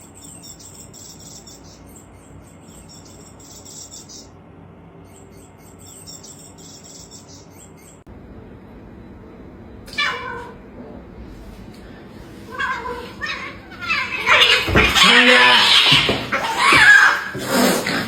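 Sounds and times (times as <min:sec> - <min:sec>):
small birds chirping: 0:00.0 - 0:08.1
steady background hum: 0:00.0 - 0:18.0.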